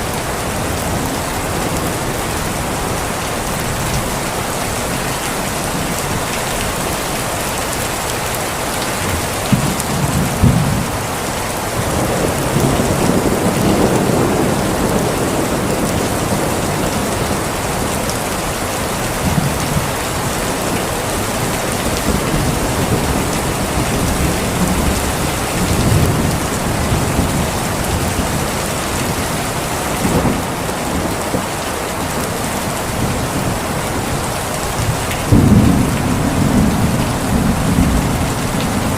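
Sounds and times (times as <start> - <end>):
heavy rain: 0.0 - 38.9
thunder rolling: 11.7 - 18.2, 19.2 - 31.4, 32.9 - 38.9.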